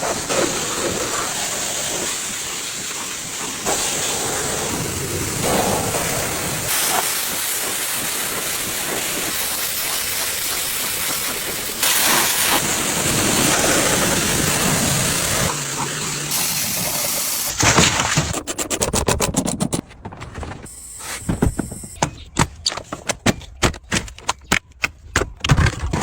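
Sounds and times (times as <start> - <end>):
cleaning tool hissing air: 3.6 - 17.6, 20.7 - 22.0.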